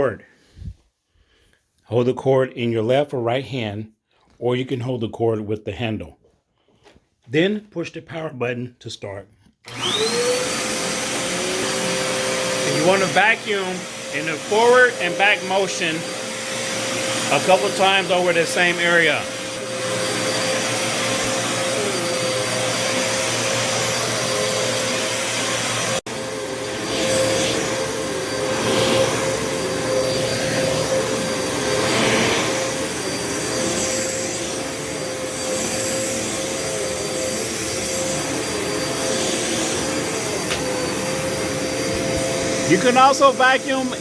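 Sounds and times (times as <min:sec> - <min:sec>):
vacuum cleaner on carpet: 0:09.7 - 0:44.0.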